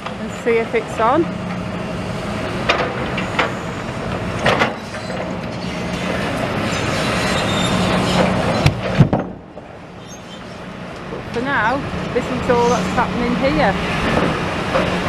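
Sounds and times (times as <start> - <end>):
heavy vehicle passing: 0.0 - 15.0
metallic clanks and squeals: 2.7 - 9.3, 10.0 - 10.7, 12.1 - 15.0.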